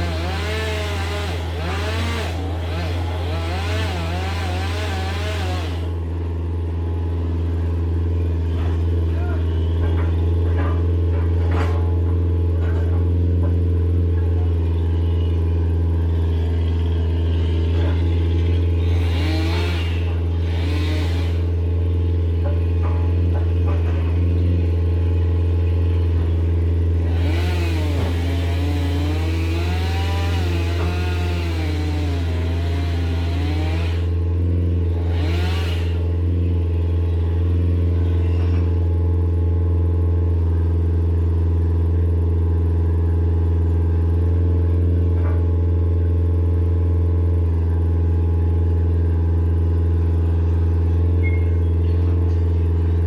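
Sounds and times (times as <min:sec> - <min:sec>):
engine revving with hiss: 0:00.0 - 0:05.9, 0:35.1 - 0:36.0
chainsaw running: 0:00.0 - 0:53.0
heavy machinery engine drone: 0:00.0 - 0:53.0.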